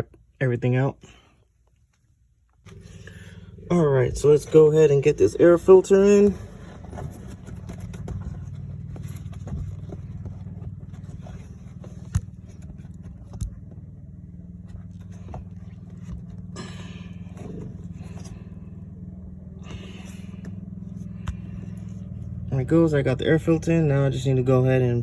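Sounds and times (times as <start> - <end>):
steady low drone: 2.7 - 25.0
filter scraping in plastic box: 4.1 - 13.4.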